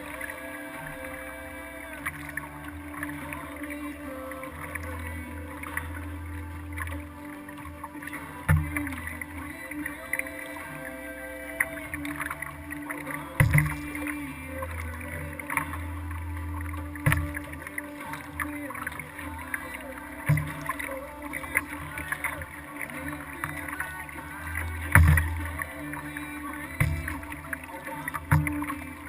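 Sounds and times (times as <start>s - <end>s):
water moving along kayak hull: 0.0s - 29.0s
dull thump: 13.4s - 13.9s.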